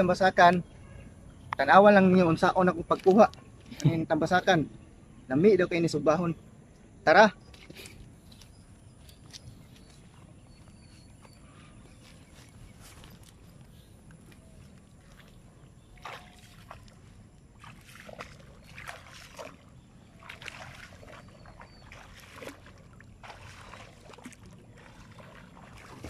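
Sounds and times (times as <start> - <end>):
wading through shallow water: 7.4 - 26.0.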